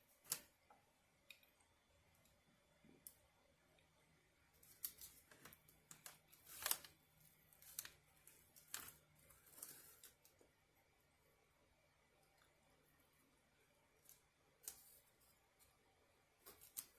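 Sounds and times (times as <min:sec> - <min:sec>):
rustling and crinkling handling noises: 0:04.6 - 0:10.6, 0:16.4 - 0:16.9.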